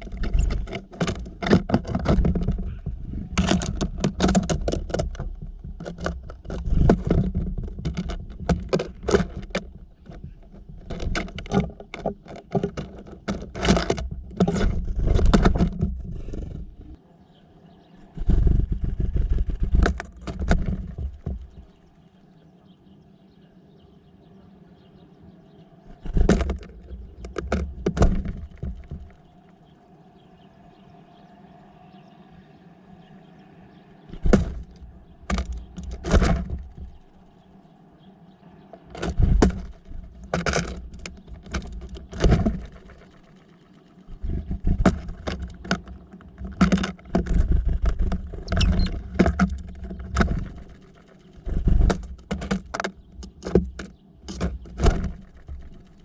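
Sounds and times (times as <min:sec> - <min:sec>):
dull low thumps: 0:00.0 - 0:12.0
birds pecking at a feeder: 0:00.0 - 0:56.0.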